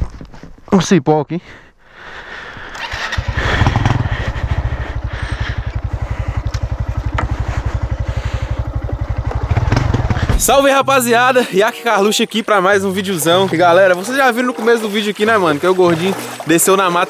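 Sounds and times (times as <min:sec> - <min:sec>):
motorcycle engine running: 0:02.8 - 0:11.5.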